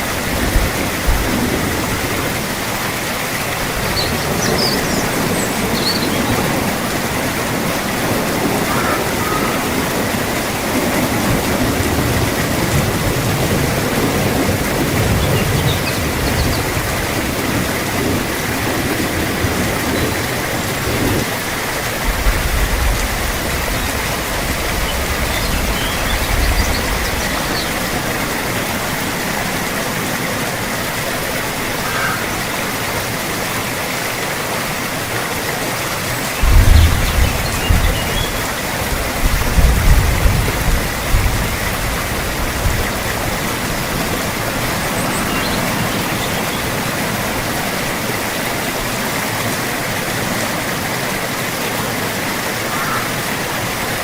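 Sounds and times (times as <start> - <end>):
steady rain hissing: 0.0 - 54.0
low thunder rumbling: 0.1 - 2.8, 3.5 - 30.2, 36.4 - 47.6.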